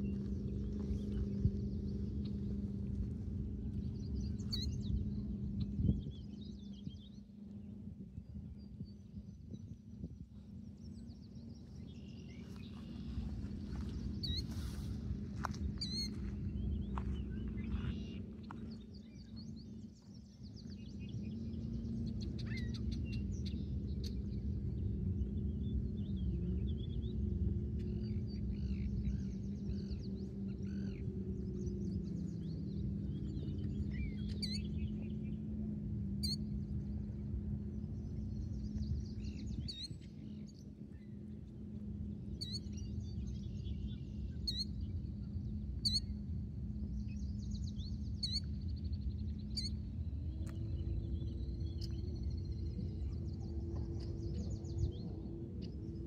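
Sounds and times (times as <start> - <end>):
low rumble and hum: 0.0 - 56.0
small birds chirping and singing: 3.7 - 7.7, 8.8 - 35.4.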